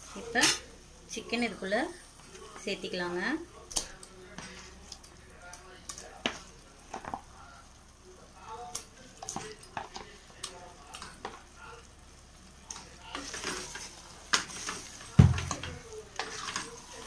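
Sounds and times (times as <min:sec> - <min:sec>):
chicken sizzling in masala: 0:00.0 - 0:17.0
spatula thump in pot: 0:15.2 - 0:15.8.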